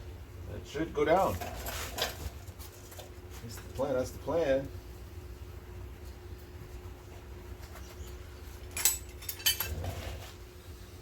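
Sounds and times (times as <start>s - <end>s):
steady low hum: 0.0s - 11.0s
sharp metallic clinks: 8.7s - 9.7s.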